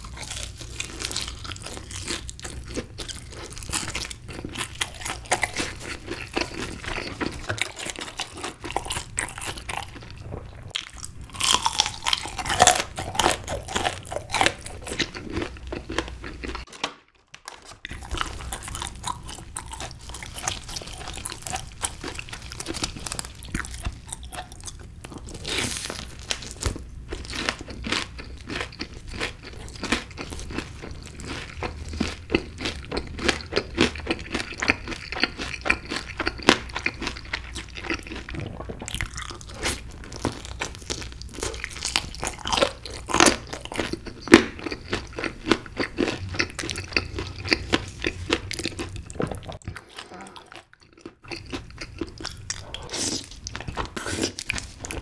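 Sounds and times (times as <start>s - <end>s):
crunching and chewing fried chicken: 0.0s - 55.0s.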